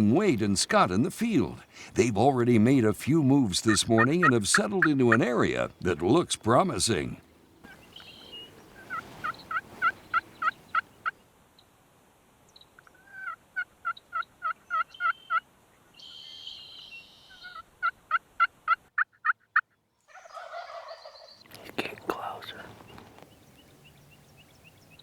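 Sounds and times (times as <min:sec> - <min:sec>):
raspy turkey call: 0:03.5 - 0:05.6, 0:07.6 - 0:11.1, 0:18.4 - 0:21.3
turkey yelping: 0:03.6 - 0:05.6, 0:07.6 - 0:10.9, 0:13.1 - 0:15.3, 0:20.1 - 0:21.3.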